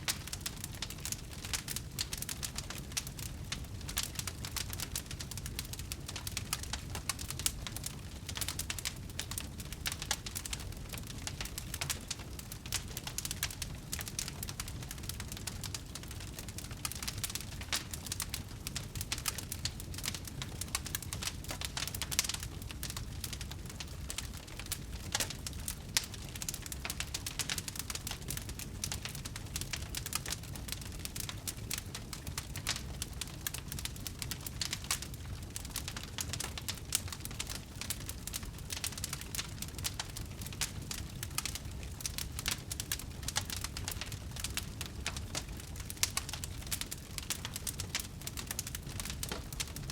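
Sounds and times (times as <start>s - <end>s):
firewood crackling and popping: 0.0s - 49.9s
low rumble of flames: 0.0s - 49.9s.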